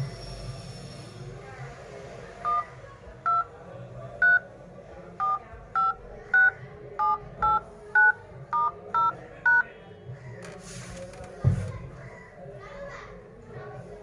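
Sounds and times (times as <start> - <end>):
phone dial-pad two-tone beeps: 3.3 - 3.5, 4.2 - 4.4, 5.2 - 9.6.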